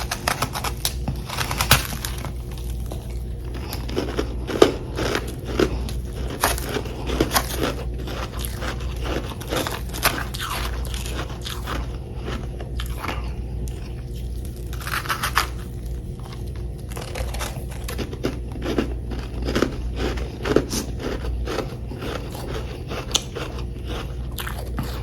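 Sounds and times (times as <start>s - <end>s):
chewing crunchy frost: 0.0s - 25.0s.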